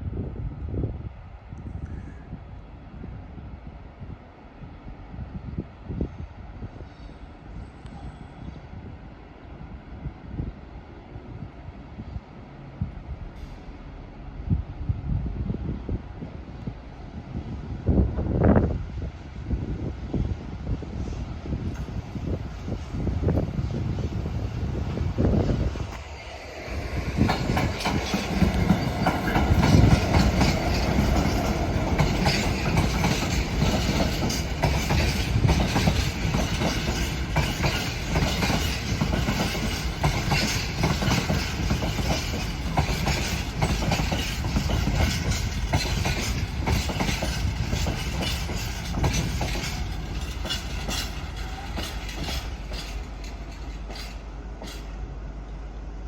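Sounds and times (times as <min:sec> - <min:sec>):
train rumbling: 0:00.0 - 0:56.0
wheels clicking over rail joints: 0:26.8 - 0:55.0.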